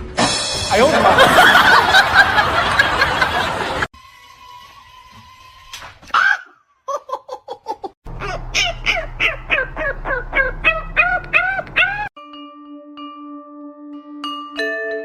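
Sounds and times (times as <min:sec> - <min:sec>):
bird calling: 0:08.1 - 0:12.1.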